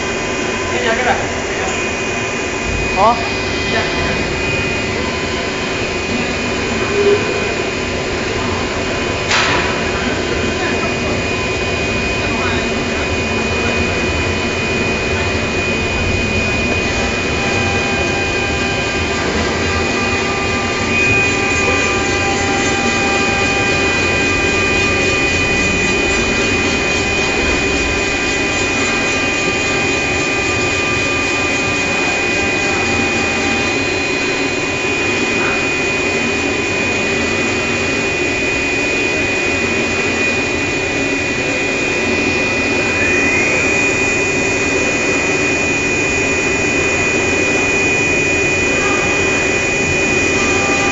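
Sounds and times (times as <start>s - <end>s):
cutting machine whirring: 0.0s - 50.9s
high steady whine: 0.0s - 50.9s.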